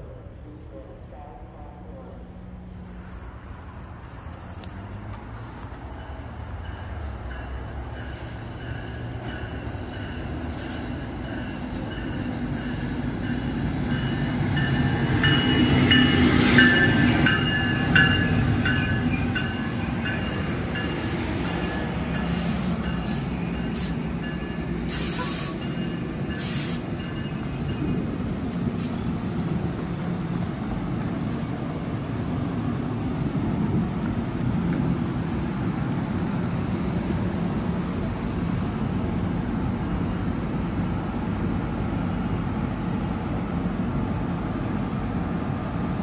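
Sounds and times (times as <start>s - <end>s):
passing train rumble: 0.0s - 46.0s
wheels squealing on rails: 1.4s - 31.4s.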